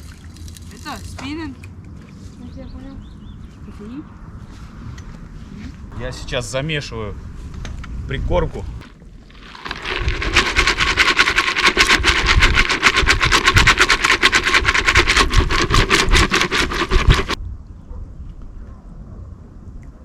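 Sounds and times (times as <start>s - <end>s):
fast even rattling: 9.3s - 17.4s.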